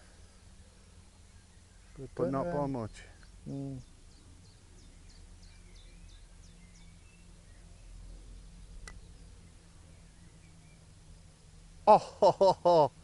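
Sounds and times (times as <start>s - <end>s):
small birds chirping: 0.0s - 12.8s
low outdoor rumble: 0.0s - 13.0s.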